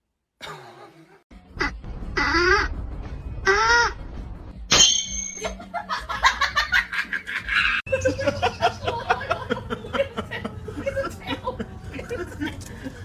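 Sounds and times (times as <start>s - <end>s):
people laughing: 5.4s - 13.0s.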